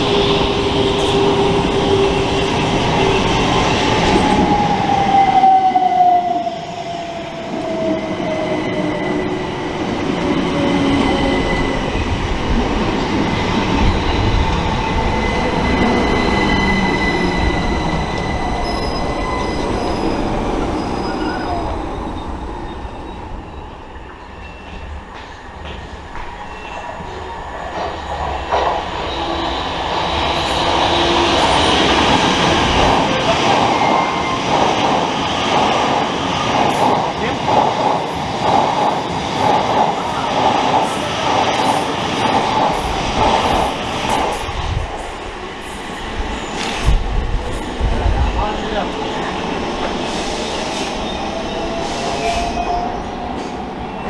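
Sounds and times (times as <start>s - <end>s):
train rumbling: 0.0s - 54.0s
high wheel squeal: 14.1s - 24.9s.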